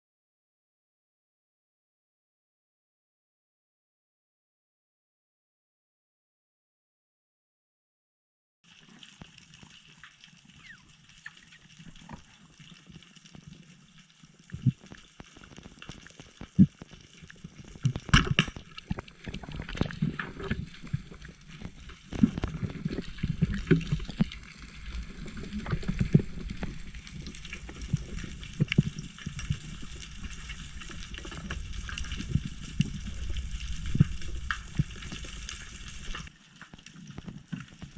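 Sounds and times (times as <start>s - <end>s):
seawater sloshing and gurgling: 14.4s - 36.4s
knocks and splashes: 17.8s - 20.7s.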